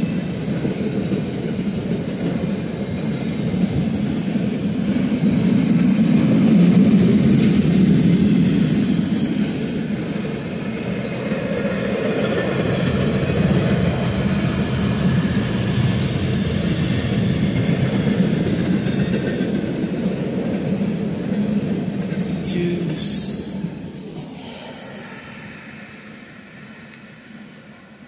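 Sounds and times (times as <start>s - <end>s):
steel wheels rumbling on rail: 0.0s - 28.0s.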